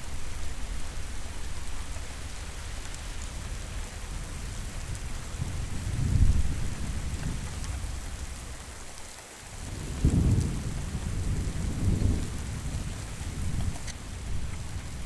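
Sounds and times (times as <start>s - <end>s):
steady rain falling: 0.0s - 15.0s
rolling thunder: 4.2s - 8.6s, 9.6s - 15.0s.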